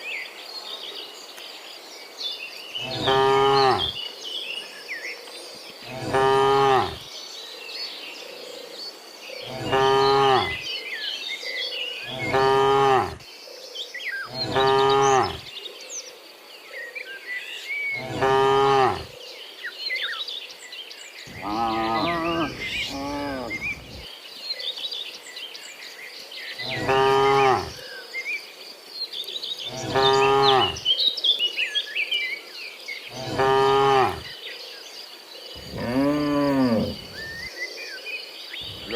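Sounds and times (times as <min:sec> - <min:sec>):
cattle mooing: 0:12.1 - 0:13.2, 0:14.4 - 0:15.4, 0:18.0 - 0:19.1, 0:21.3 - 0:24.0, 0:33.2 - 0:34.2, 0:35.6 - 0:37.5, 0:38.6 - 0:38.9
chirps: 0:21.2 - 0:24.1, 0:35.5 - 0:37.6, 0:38.5 - 0:38.9.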